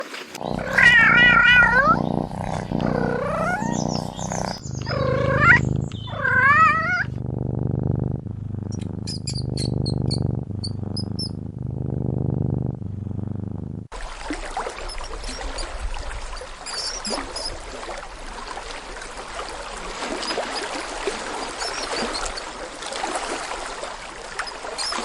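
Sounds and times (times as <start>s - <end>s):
cat meowing: 0.4s - 7.2s
cat purring: 0.4s - 13.9s.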